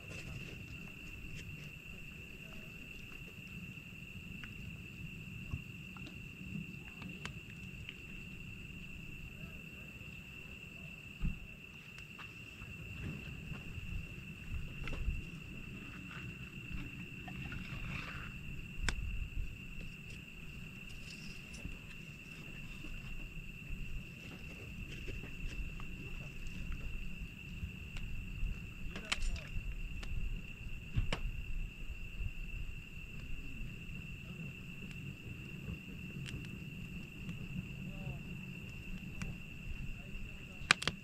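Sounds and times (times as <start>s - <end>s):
night insects chirring: 0.0s - 41.0s
low rumbling background: 12.7s - 40.6s
campfire crackling pops: 18.8s - 20.9s, 28.9s - 30.2s, 30.8s - 31.3s, 34.8s - 37.5s, 40.5s - 41.0s.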